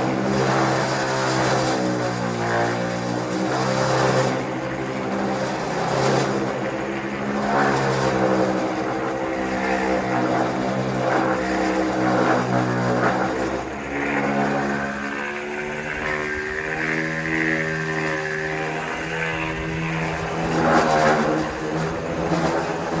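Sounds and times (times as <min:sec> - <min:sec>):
power tool motor running: 0:00.0 - 0:23.0.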